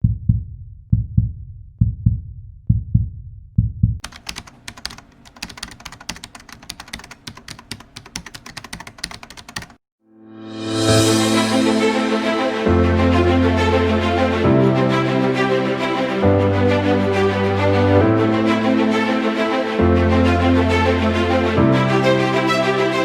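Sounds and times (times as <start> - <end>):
heartbeat thumps: 0.0 - 4.0
rapid typing-like clicking: 4.0 - 9.8
music: 10.0 - 23.0.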